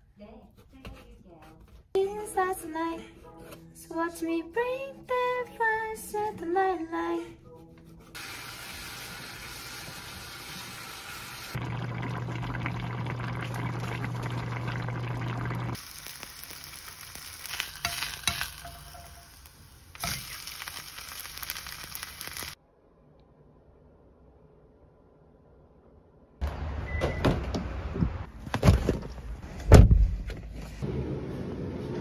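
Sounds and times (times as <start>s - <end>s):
food sizzling in a pan: 8.2s - 11.8s, 15.2s - 22.6s.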